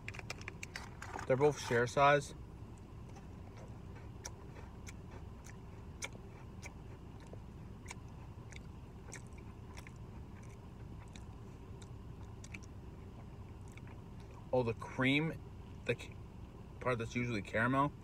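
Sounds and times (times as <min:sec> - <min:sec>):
person chewing: 0:02.7 - 0:14.5
soft mouth clicks: 0:04.2 - 0:12.8.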